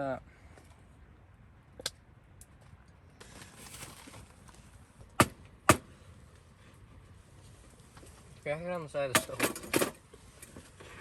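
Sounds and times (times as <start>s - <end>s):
loud sharp knocks: 5.2s - 5.8s.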